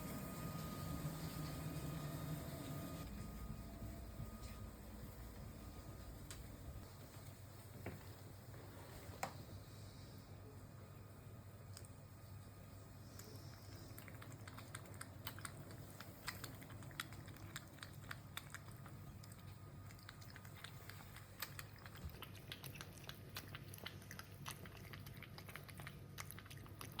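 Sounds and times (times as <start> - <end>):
cat lapping water: 13.0 - 27.0.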